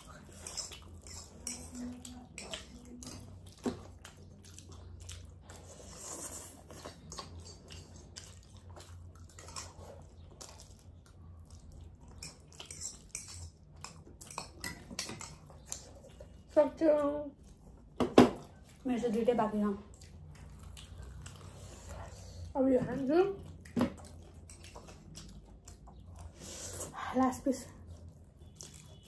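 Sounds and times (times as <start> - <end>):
quiet chewing: 0.0 - 29.0
cutlery clinking on ceramic bowls: 0.3 - 2.7, 12.2 - 15.8.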